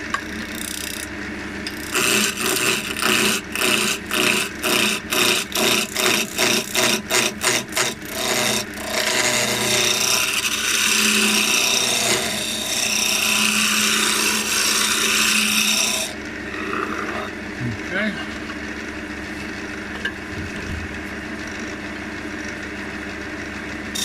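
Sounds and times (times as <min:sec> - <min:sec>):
lathe tool cutting wood: 0:00.0 - 0:17.4.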